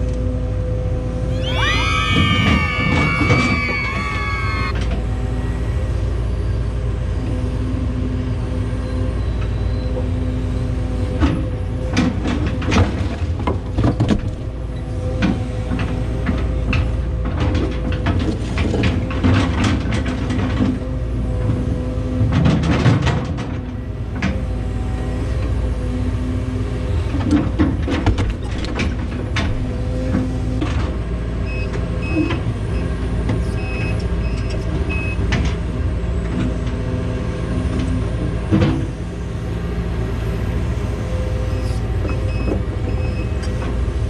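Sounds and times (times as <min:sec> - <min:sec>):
excavator diesel engine droning: 0:00.1 - 0:13.6, 0:29.1 - 0:44.0.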